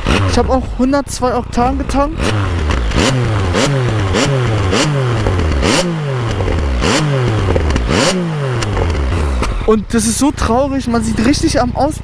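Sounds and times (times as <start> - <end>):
motorcycle engine revving: 0.0 - 12.0
exhaust pops and cracks: 1.9 - 9.9.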